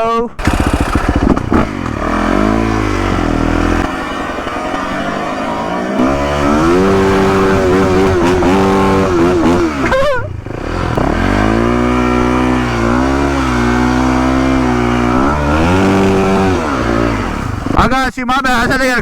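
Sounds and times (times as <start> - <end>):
motorcycle engine running: 0.4 - 18.0.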